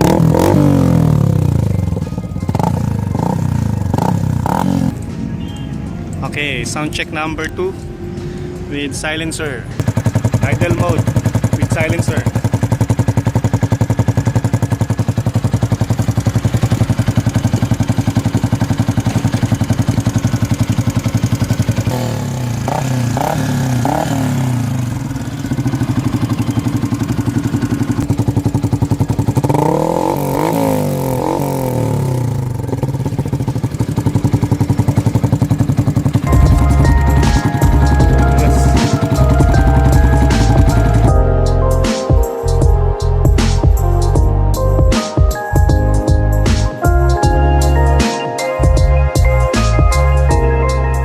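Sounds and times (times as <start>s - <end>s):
music: 0.0s - 9.8s, 36.2s - 51.0s
motorcycle engine idling and revving: 0.0s - 51.0s.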